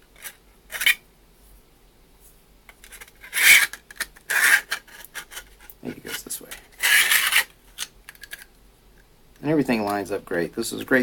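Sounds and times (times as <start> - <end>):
plastic parts scraping: 0.2 - 1.0, 2.7 - 8.5.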